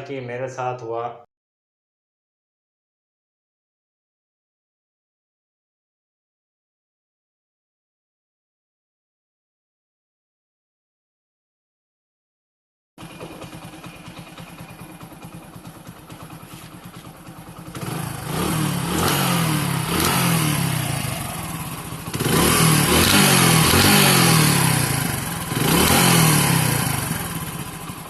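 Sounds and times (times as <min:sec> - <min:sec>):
knocking rattle from engine: 0:13.0 - 0:19.2
motorcycle engine revving: 0:13.0 - 0:28.0.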